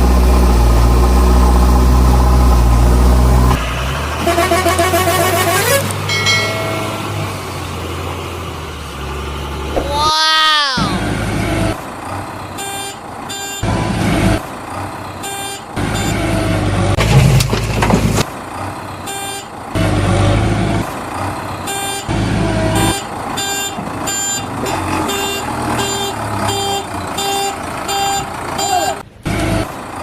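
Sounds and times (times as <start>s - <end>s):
truck engine running: 0.0s - 10.1s, 10.8s - 30.0s.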